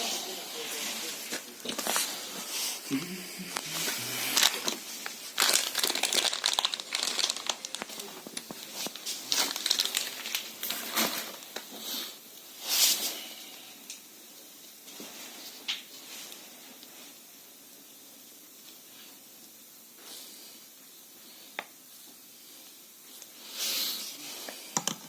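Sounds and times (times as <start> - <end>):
crinkling and scraping: 0.7 - 2.8, 3.5 - 11.9.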